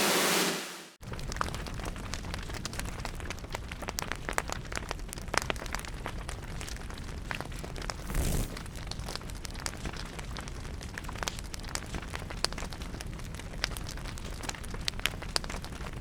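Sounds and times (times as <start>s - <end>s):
wood fire crackling: 1.0s - 16.0s
fire whoosh: 7.8s - 9.2s.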